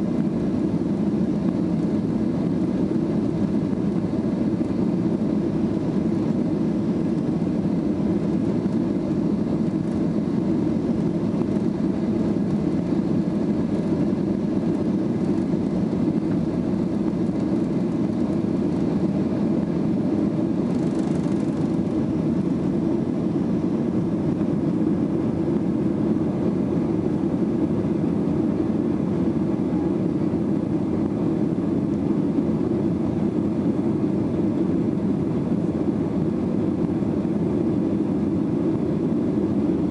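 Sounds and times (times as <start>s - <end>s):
airplane cabin engine roar: 0.0s - 39.9s.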